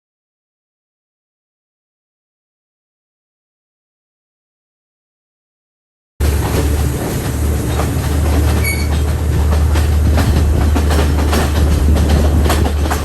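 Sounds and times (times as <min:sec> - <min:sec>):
train rumbling on rails: 0:06.2 - 0:13.0
wheels clicking over track: 0:06.2 - 0:13.0
high-pitched wheel squeal: 0:08.4 - 0:09.0.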